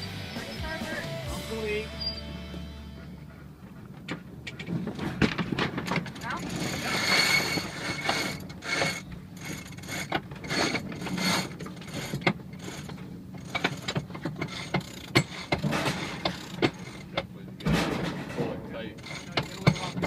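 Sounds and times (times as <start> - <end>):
winch ratchet clicking: 6.1 - 17.3, 19.0 - 20.0.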